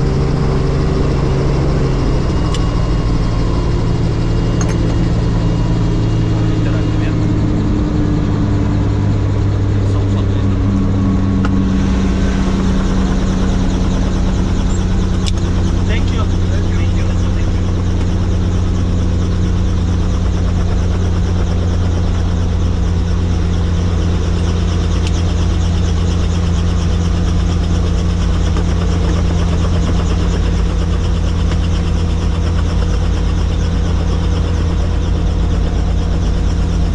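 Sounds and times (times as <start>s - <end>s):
helicopter engine and rotor: 0.0s - 36.9s.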